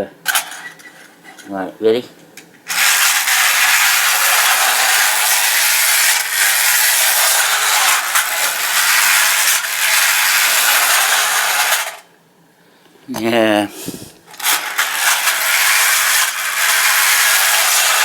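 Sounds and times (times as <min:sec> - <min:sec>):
clockwork toy train whirring: 0:02.7 - 0:12.1, 0:14.3 - 0:18.0.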